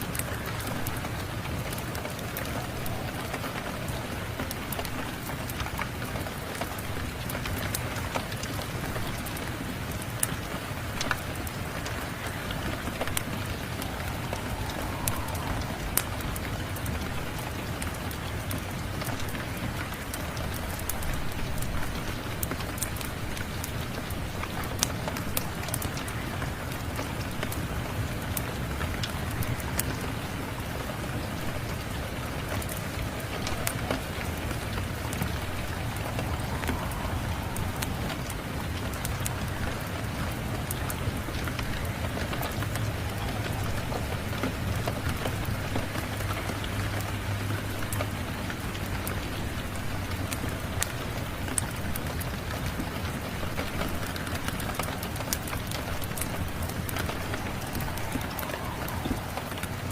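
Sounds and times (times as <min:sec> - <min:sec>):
steady rain: 0:00.0 - 0:59.9
wood fire crackling: 0:00.0 - 0:59.9
low rumble: 0:10.9 - 0:18.4, 0:32.9 - 0:41.4.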